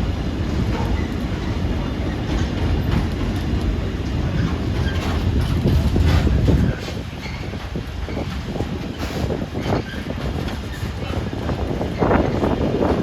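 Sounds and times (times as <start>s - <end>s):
train passing rumble: 0.0s - 13.0s.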